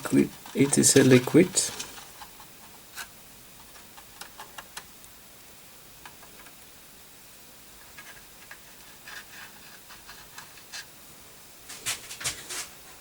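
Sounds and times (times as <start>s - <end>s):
faint clicks and scratches: 0.0s - 4.9s, 7.8s - 10.9s
low hiss: 0.0s - 13.0s.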